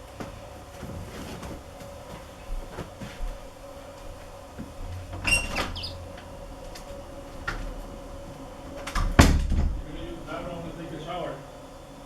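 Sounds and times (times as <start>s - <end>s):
short high squeak: 5.2s - 6.0s
loud thump: 9.1s - 9.9s.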